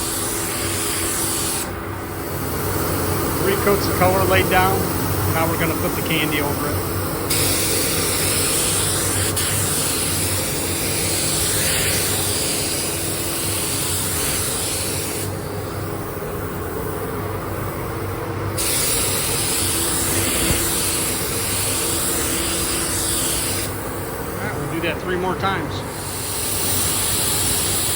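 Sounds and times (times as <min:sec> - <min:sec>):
steady low hum: 0:00.0 - 0:27.9
paint spray gun hissing: 0:18.6 - 0:24.1, 0:25.9 - 0:27.9.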